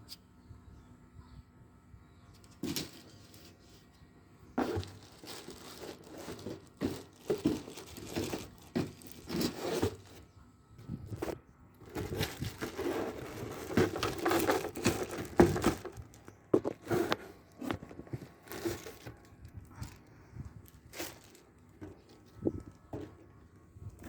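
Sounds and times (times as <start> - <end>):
packaging rustling and crinkling: 4.6 - 10.3, 11.0 - 23.3.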